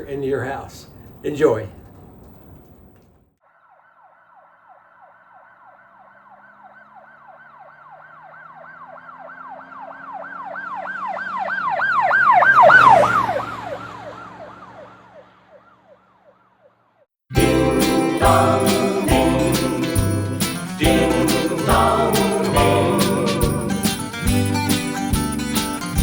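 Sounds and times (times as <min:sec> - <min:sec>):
emergency siren yelping: 0:03.5 - 0:16.7, 0:17.4 - 0:24.7.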